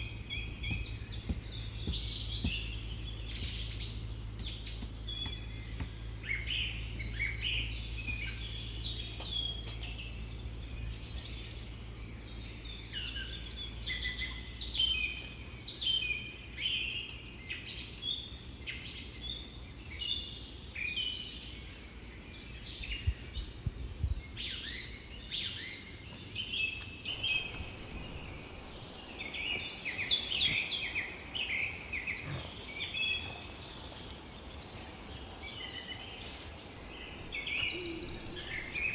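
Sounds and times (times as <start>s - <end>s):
low steady rumble: 0.0s - 15.6s, 27.0s - 32.0s
small birds chirping: 0.0s - 38.9s.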